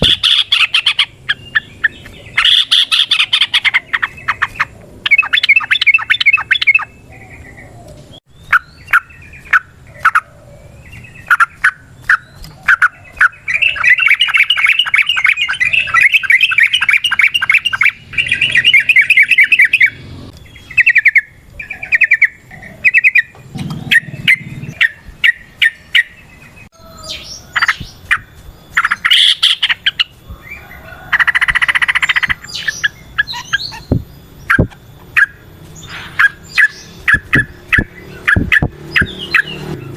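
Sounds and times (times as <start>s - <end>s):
bulbul singing bubbly chirps: 0.0s - 26.3s, 31.2s - 39.9s.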